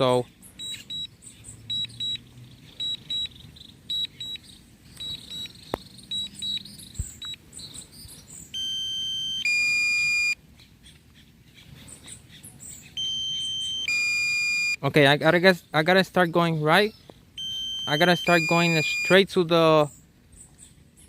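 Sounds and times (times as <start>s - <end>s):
held alert tones: 0.6s - 1.1s, 1.7s - 7.4s, 8.5s - 10.4s, 13.0s - 14.8s, 17.4s - 19.2s
short high warning beeps: 0.6s - 1.1s, 1.7s - 2.2s, 2.8s - 3.3s, 3.9s - 4.4s, 5.0s - 6.6s, 8.6s - 10.4s, 13.0s - 14.8s, 17.4s - 19.2s.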